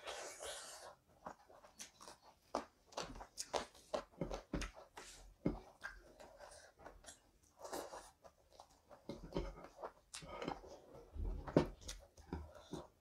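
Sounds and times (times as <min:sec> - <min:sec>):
chewing and mouth smacks: 0:00.4 - 0:10.6.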